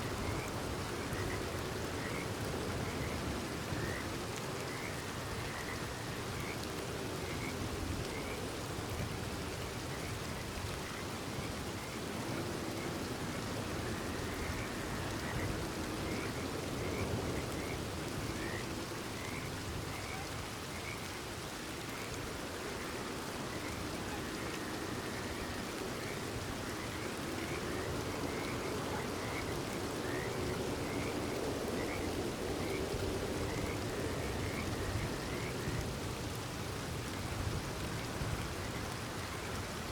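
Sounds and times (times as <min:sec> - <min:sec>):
steady rain falling: 0:00.0 - 0:39.9
frogs chirping: 0:00.1 - 0:06.6, 0:11.8 - 0:35.8.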